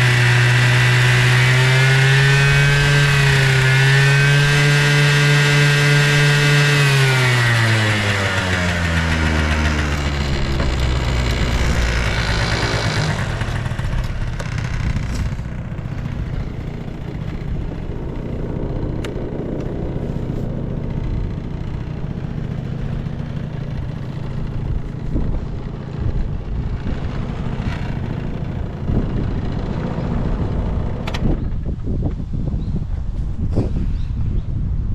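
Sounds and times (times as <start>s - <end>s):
scooter engine idling: 0.0s - 31.7s.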